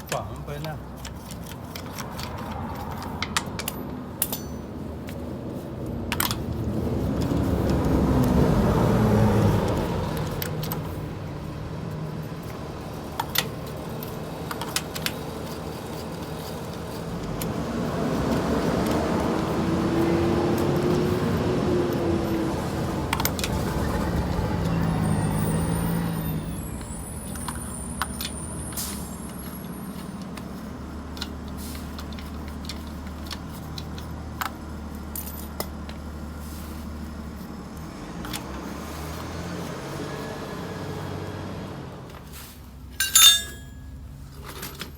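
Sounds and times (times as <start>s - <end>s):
car engine and road noise: 0.0s - 44.9s
metal clicks and clinks: 1.0s - 4.8s, 43.0s - 43.9s
low engine hum: 4.6s - 13.1s.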